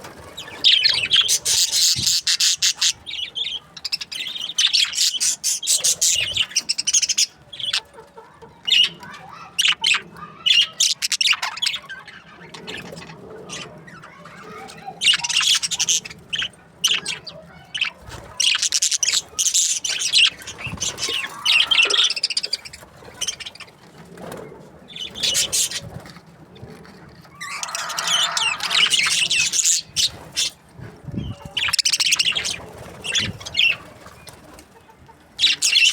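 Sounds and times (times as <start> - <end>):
budgerigars chirping: 0.2 - 7.8, 9.6 - 13.7, 14.5 - 23.7, 25.0 - 25.9, 27.4 - 30.6, 31.2 - 34.4, 35.4 - 35.9.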